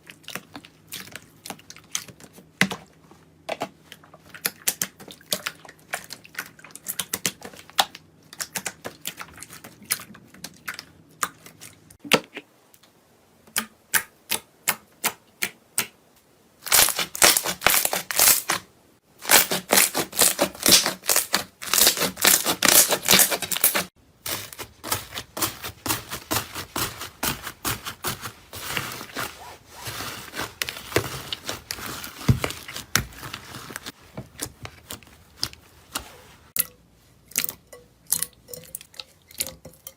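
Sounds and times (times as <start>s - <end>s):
material crushed crackling: 19.2s - 36.5s.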